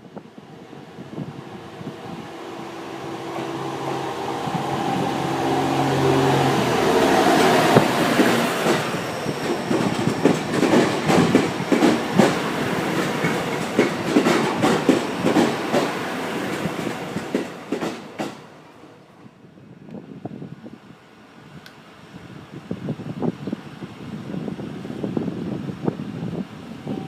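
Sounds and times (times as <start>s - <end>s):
train wheels clattering over rail joints: 7.2s - 18.5s.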